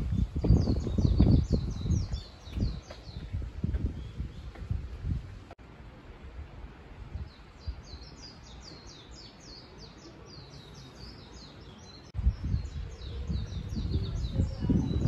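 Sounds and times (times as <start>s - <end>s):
bird singing high chirps: 0.0s - 3.3s
low rumble on microphone: 0.0s - 9.3s, 12.2s - 15.0s.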